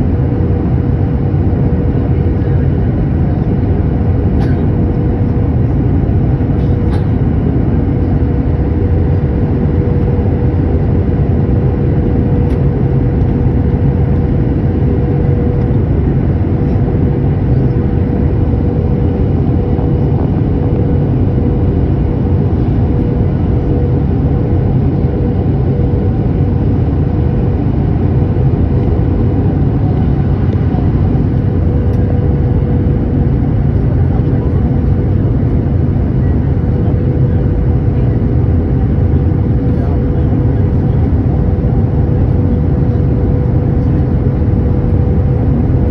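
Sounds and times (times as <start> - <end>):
airliner cabin engine noise: 0.0 - 45.9.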